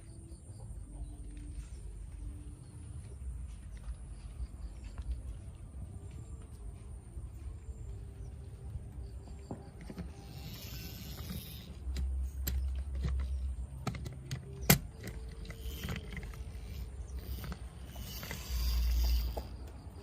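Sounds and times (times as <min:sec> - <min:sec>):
toy trucks rolling rumble: 0:09.1 - 0:20.0.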